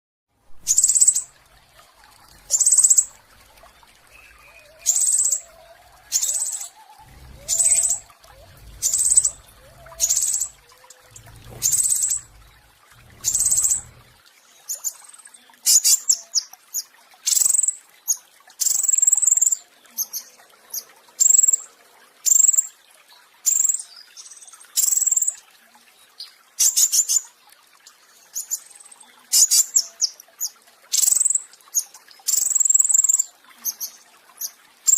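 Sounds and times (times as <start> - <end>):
songbird singing: 0.6 - 15.0.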